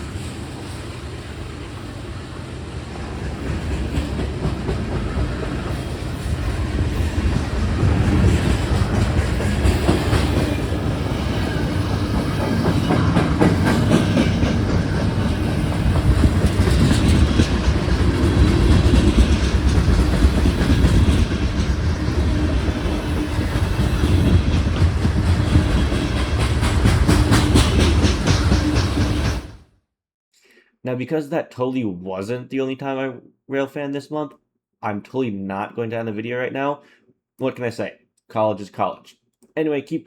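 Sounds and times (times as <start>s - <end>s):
freight train rumbling past: 0.0s - 29.7s
wheels clicking over rail joints: 3.4s - 29.5s.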